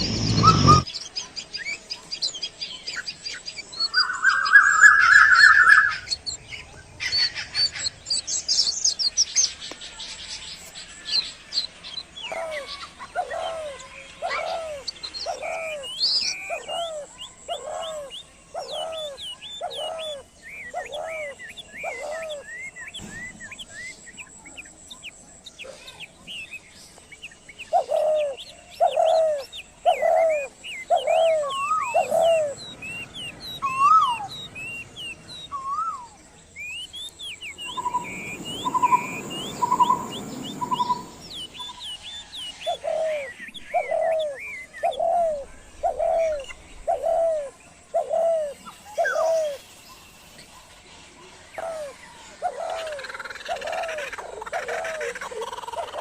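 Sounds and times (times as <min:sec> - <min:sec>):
brief hiss: 0:00.0 - 0:00.8
bird low hooting notes: 0:00.0 - 0:00.9, 0:37.4 - 0:49.6
birds chirping and twittering: 0:00.0 - 0:56.0.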